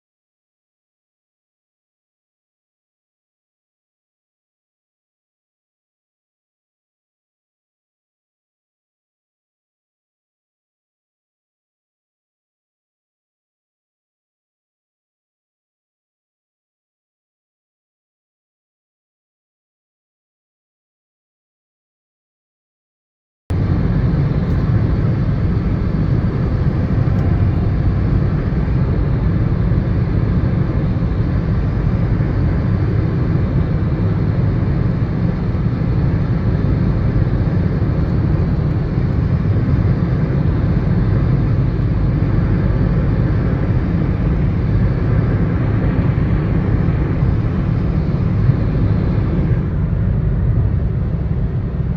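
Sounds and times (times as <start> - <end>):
vehicle rumbling in motion: 23.5 - 51.9.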